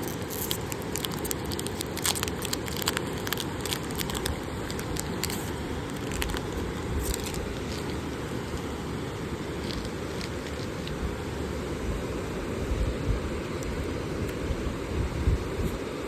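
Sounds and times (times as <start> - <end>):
foil card packs crinkling: 0.0 - 8.7, 9.5 - 11.0.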